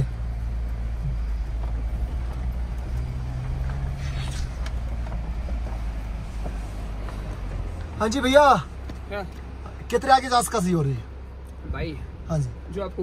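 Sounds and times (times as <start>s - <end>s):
car engine low drone: 0.0s - 13.0s.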